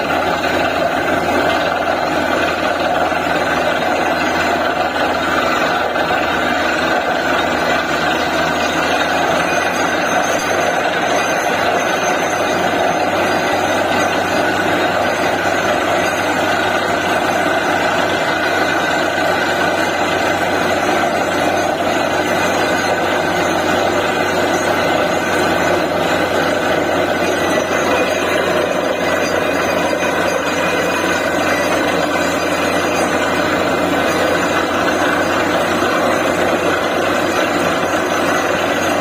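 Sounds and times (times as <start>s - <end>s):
drilling rig diesel engine running: 0.0s - 39.0s.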